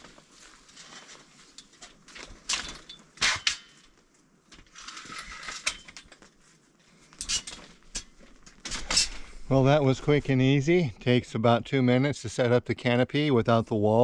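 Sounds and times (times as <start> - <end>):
metal frame sliding and clicking: 4.6 - 6.2, 7.2 - 9.4.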